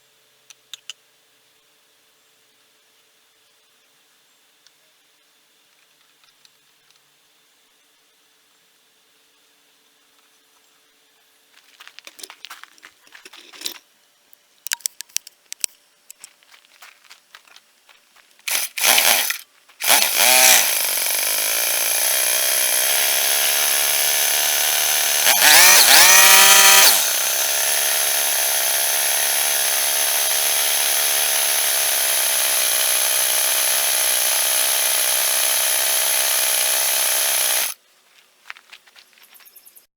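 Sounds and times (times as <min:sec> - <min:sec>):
clicks and handling noises: 0:11.9 - 0:13.9, 0:14.6 - 0:16.5
trimmer engine idling: 0:18.5 - 0:37.8
trimmer engine pull-started: 0:18.5 - 0:37.8.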